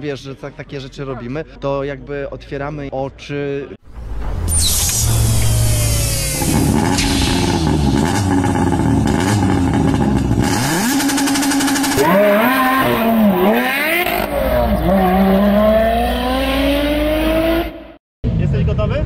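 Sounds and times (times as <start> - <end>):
car engine revving hard: 5.4 - 18.0.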